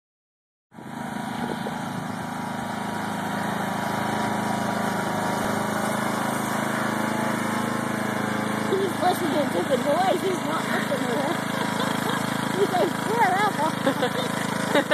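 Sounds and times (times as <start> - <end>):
tractor engine running: 0.8 - 14.9.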